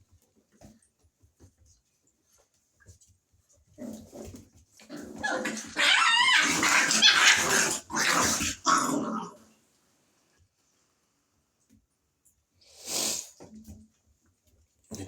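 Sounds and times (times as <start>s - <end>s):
puppies growling yelping and barking: 3.7s - 9.4s.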